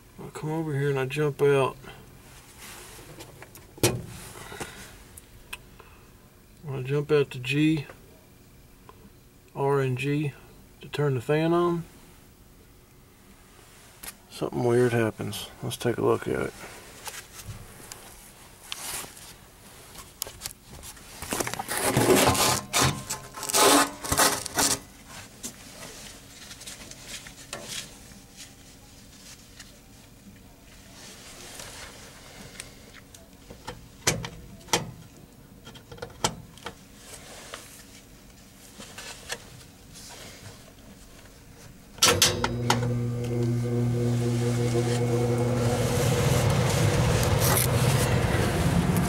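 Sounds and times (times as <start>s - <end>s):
rubbing and scraping handling noise: 2.3s - 3.5s, 16.5s - 30.0s, 30.7s - 32.6s, 36.8s - 41.8s, 44.2s - 49.0s.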